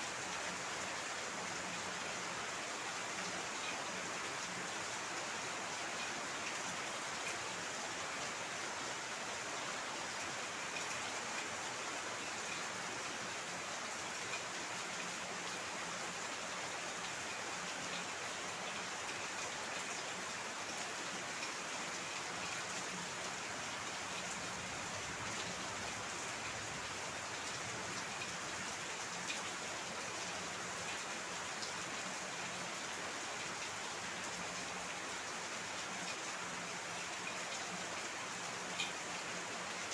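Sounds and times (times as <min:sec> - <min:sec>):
heavy rain pattering: 0:18.0 - 0:39.8.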